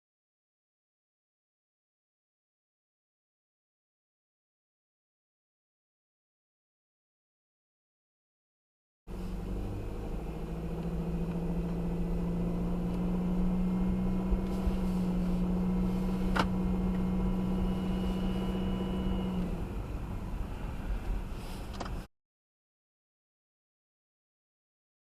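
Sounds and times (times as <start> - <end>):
steady low whine: 9.1 - 21.9
car engine and road noise: 9.1 - 22.1.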